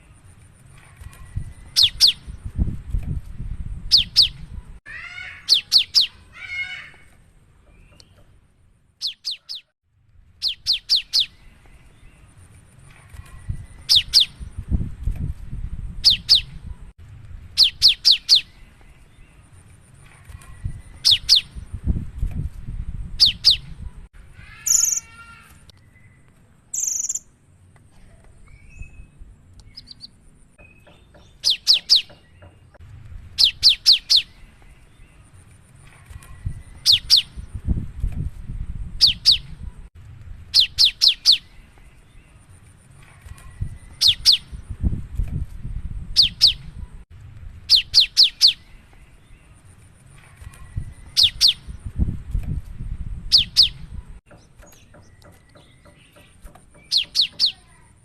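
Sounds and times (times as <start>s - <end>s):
harsh buzzy bird call: 24.3s - 25.7s.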